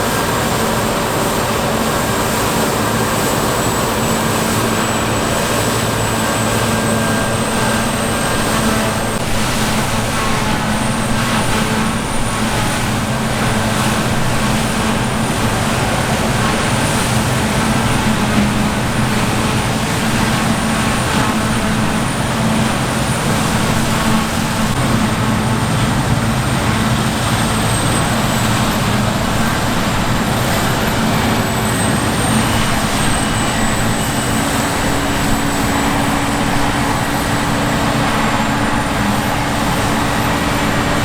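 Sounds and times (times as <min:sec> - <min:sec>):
diesel engine drone: 0:00.0 - 0:41.0.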